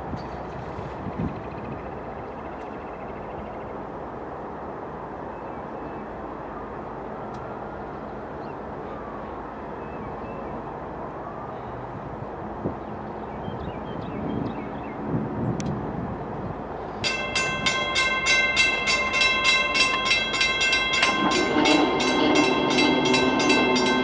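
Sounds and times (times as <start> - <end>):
diesel locomotive engine running: 16.6 - 24.0.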